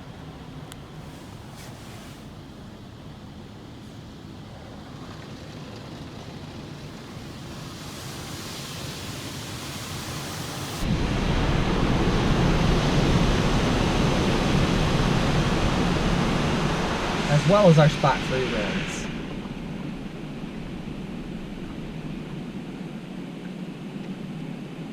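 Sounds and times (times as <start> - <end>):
water spraying onto car: 0.0 - 18.9.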